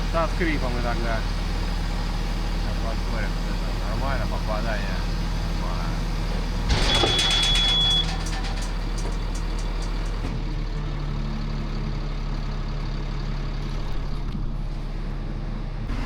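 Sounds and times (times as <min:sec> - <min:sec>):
truck engine running: 0:00.0 - 0:16.0
clicks: 0:06.7 - 0:10.3.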